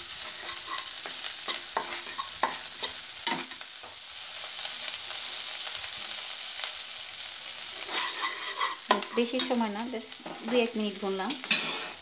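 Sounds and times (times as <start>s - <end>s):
spatula scraping a pan: 0.0s - 3.6s, 7.6s - 9.6s, 11.4s - 12.0s
spice paste sizzling in oil: 0.0s - 12.0s.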